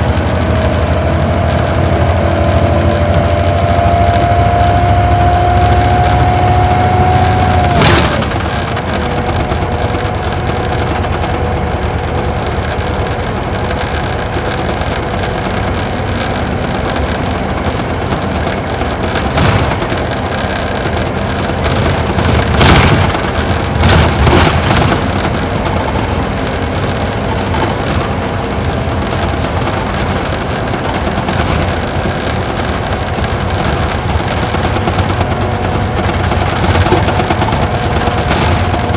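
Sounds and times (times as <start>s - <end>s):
diesel engine from inside cabin: 0.0s - 38.9s
road noise: 0.0s - 38.9s
body knocks and rattles: 7.0s - 38.9s.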